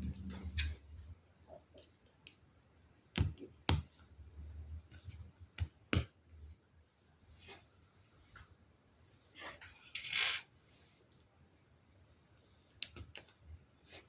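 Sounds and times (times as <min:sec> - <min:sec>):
soft rustling of plastic parts: 0:06.4 - 0:14.0.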